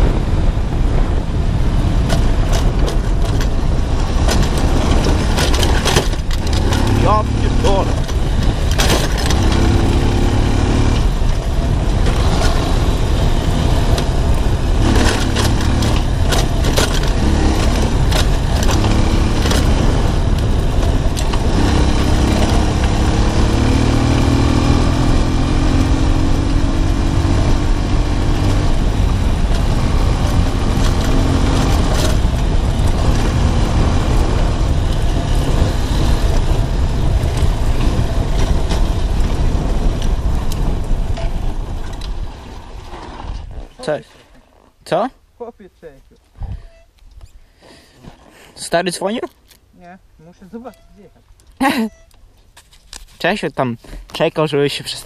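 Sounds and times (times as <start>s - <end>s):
wind buffeting microphone: 0.0s - 43.8s, 46.3s - 47.5s
motorcycle engine running: 0.0s - 44.0s
sharp clicks from rough ride: 1.8s - 44.8s, 50.6s - 55.0s.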